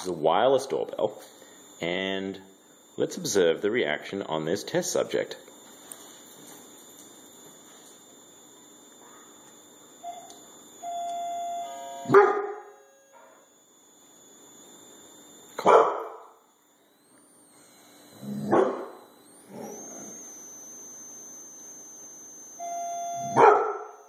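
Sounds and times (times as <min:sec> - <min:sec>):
doorbell chiming: 0:10.0 - 0:13.5, 0:22.6 - 0:24.0.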